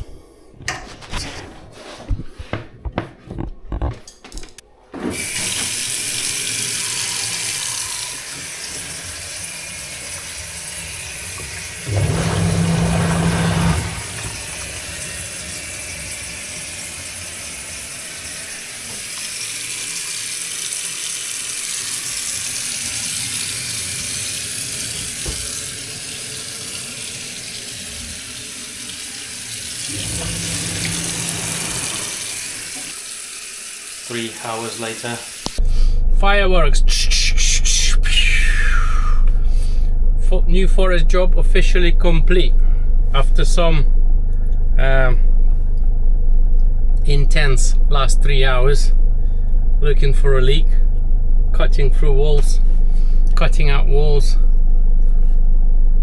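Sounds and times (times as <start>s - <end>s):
tap water running into sink: 5.1s - 35.6s
low hum: 8.4s - 19.0s, 29.8s - 32.9s, 35.6s - 56.0s.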